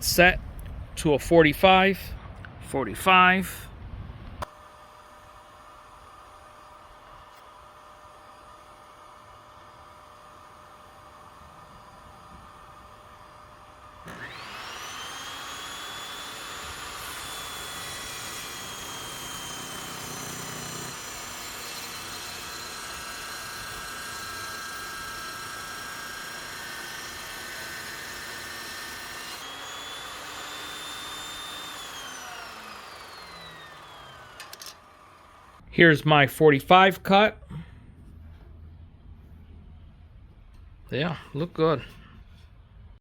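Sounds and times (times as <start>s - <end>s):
table saw cutting wood: 4.4s - 35.6s.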